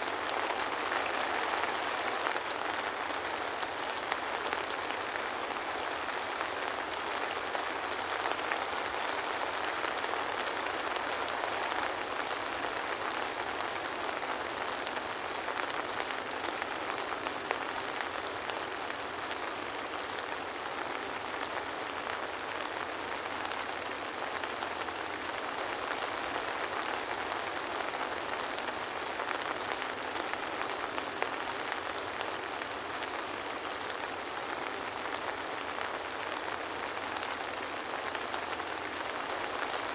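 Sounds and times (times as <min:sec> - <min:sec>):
soft rain pattering: 0:00.0 - 0:39.9.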